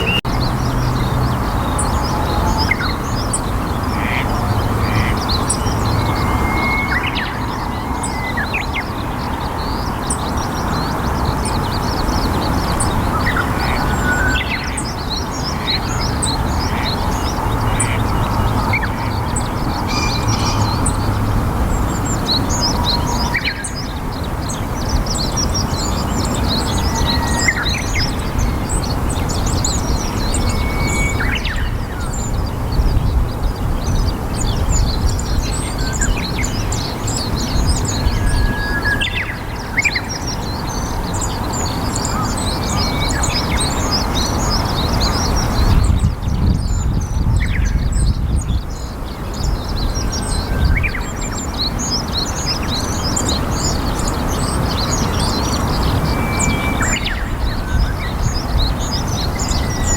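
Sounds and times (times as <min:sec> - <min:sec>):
whistled bird notes: 0:00.0 - 0:11.0, 0:13.1 - 0:32.6, 0:49.4 - 0:59.9
small birds chirping: 0:00.0 - 0:59.9.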